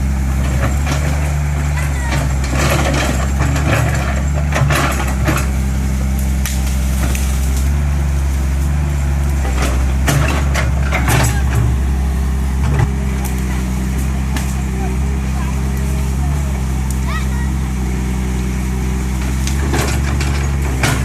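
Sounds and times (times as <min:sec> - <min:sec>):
heavy diesel engine running: 0:00.0 - 0:21.0
sharp knocks and cracks: 0:02.2 - 0:07.8, 0:08.8 - 0:11.9, 0:12.6 - 0:14.7, 0:19.1 - 0:21.0.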